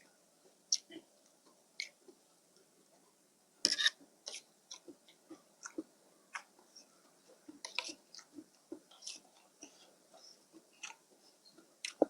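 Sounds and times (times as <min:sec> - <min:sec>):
person chewing wetly: 0:04.2 - 0:12.0.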